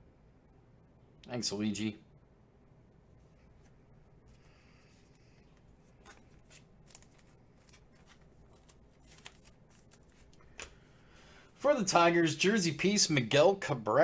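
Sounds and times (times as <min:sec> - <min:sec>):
trading cards rustling: 0:05.1 - 0:10.9.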